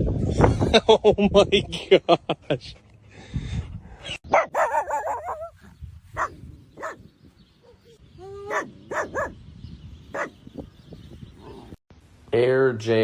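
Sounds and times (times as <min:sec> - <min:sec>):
dog barking and yipping: 0:04.3 - 0:05.6, 0:06.2 - 0:09.4, 0:10.1 - 0:10.4.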